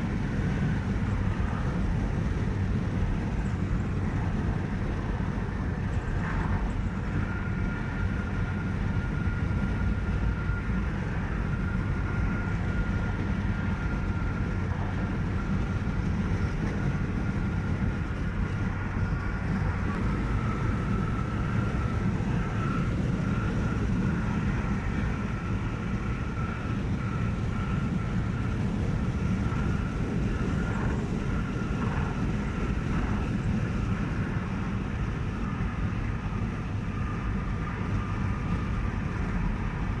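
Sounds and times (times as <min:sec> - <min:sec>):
car road noise rumble: 0:00.0 - 0:40.0
faint high whine: 0:00.0 - 0:40.0.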